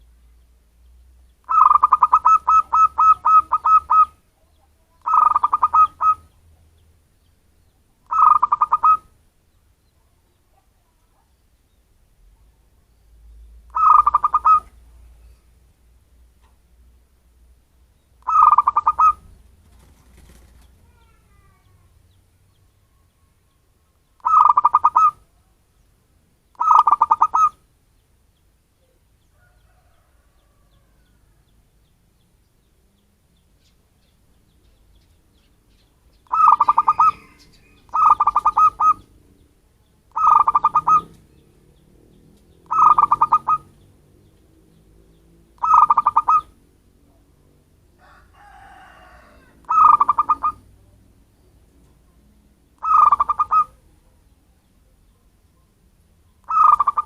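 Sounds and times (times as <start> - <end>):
dove cooing: 1.4 - 6.4, 8.0 - 9.1, 13.7 - 14.8, 18.2 - 21.8, 24.2 - 25.3, 26.6 - 27.6, 36.2 - 39.2, 40.1 - 41.4, 42.6 - 43.8, 45.5 - 47.2, 48.0 - 50.8, 52.8 - 53.9, 56.4 - 57.0.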